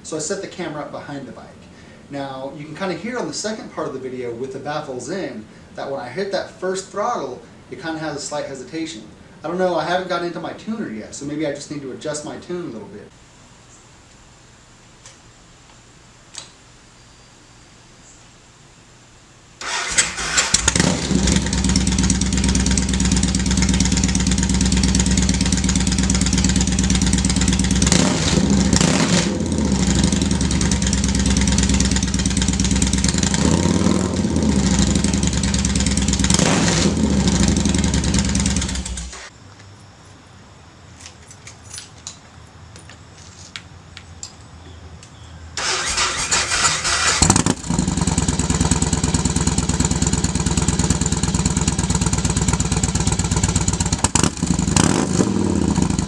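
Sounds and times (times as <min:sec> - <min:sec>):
motorcycle engine idling and revving: 0:19.6 - 0:39.3, 0:45.6 - 0:56.0.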